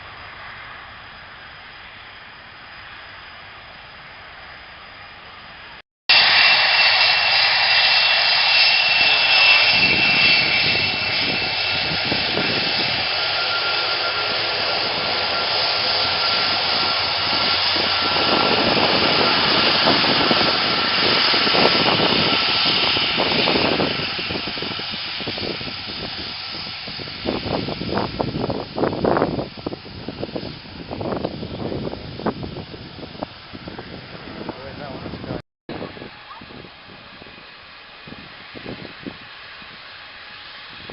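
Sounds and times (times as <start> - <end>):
high jet whine: 0.0 - 40.9
jet engines roaring: 0.0 - 40.9.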